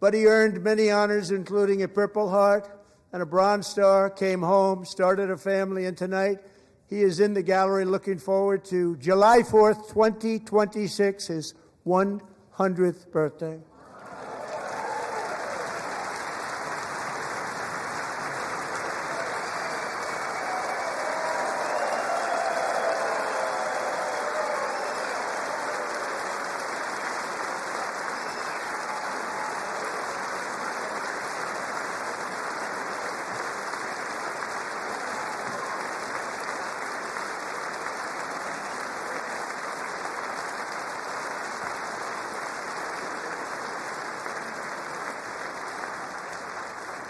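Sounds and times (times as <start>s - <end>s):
large audience applauding: 13.8s - 47.0s.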